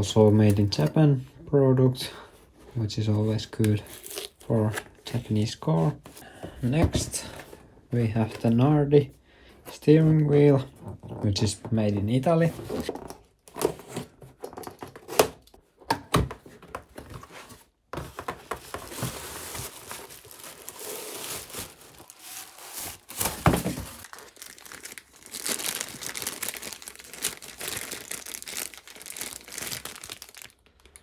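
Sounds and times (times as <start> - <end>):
packaging crinkling and tearing: 3.4 - 4.8, 18.6 - 31.0.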